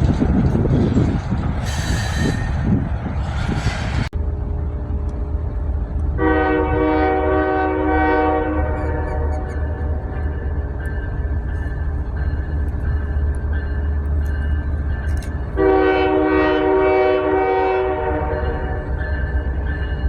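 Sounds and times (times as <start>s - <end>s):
train rumbling: 0.0s - 20.0s
locomotive horn blast: 6.2s - 10.1s, 15.6s - 18.8s.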